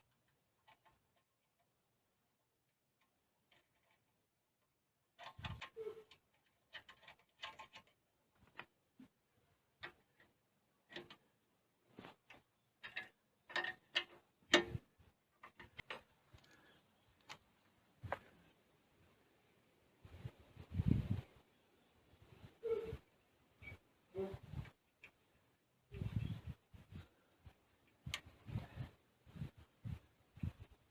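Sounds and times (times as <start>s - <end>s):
tools and small parts clicking: 3.0s - 8.8s, 9.8s - 11.2s, 12.2s - 14.8s.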